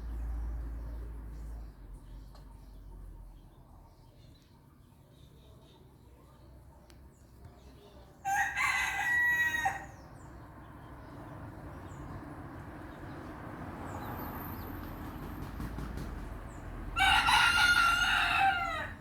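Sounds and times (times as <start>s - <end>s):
rooster crowing: 8.2s - 10.0s, 17.0s - 19.0s.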